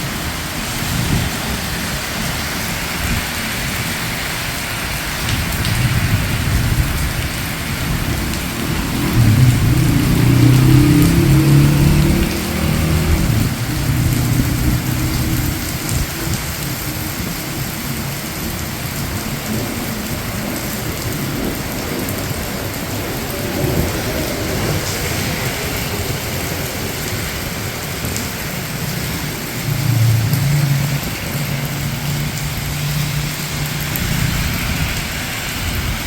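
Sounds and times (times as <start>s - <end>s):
rain falling on street: 0.0s - 36.0s
low rumble: 6.3s - 16.4s
passing vehicle engine hum: 7.4s - 16.5s, 23.1s - 36.0s.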